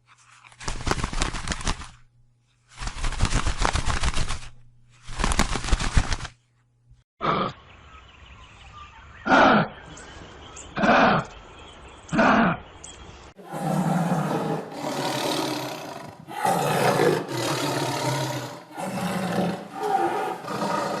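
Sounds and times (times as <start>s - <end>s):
big cat roaring: 13.4s - 21.0s.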